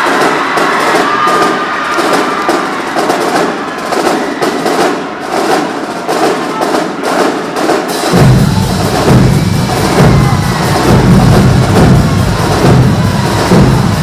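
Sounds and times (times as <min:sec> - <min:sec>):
drumline playing fast percussion: 0:00.0 - 0:14.0
bass drums and low instruments: 0:08.1 - 0:14.0.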